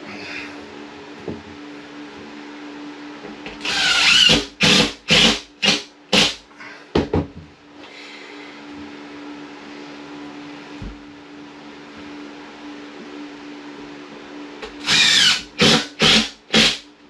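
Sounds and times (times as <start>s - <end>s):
cordless drill driving screw: 3.6s - 6.3s, 14.8s - 16.8s.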